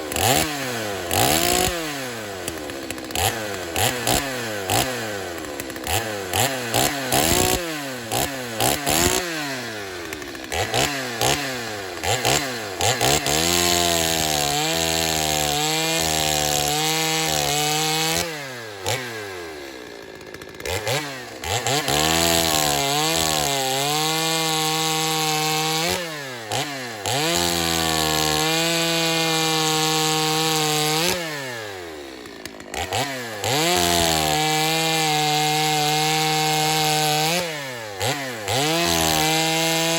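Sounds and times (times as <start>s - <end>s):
chainsaw cutting wood: 0.0s - 39.9s
chainsaw revving: 0.0s - 39.9s.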